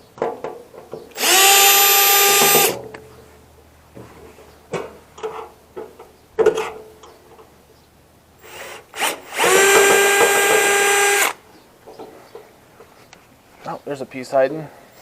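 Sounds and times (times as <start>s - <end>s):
power drill whine: 1.2s - 2.8s, 8.4s - 11.4s.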